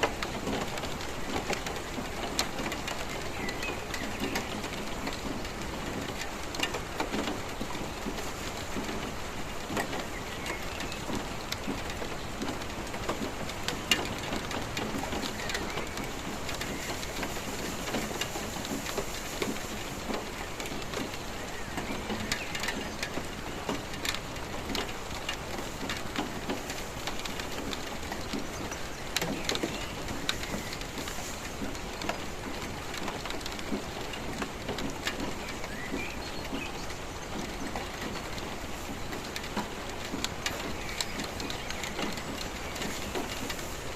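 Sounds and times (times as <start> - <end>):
steady rainfall: 0.0 - 43.9.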